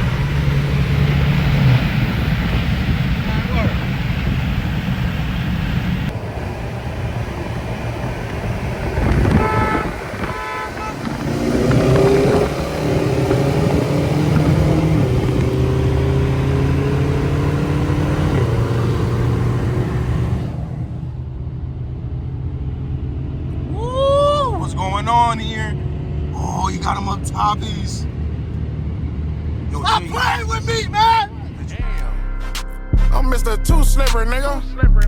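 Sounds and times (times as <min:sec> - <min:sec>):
car engines driving off: 0:00.0 - 0:32.2
car accelerating: 0:00.0 - 0:34.8
short car horn toots: 0:09.2 - 0:11.2.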